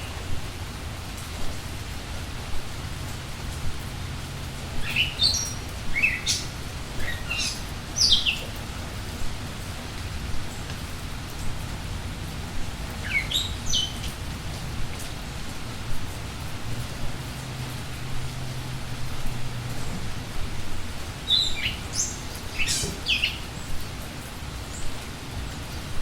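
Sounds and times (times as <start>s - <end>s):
rain falling: 0.0s - 26.0s
birds chirping: 4.7s - 9.1s, 12.8s - 15.1s, 19.8s - 23.9s.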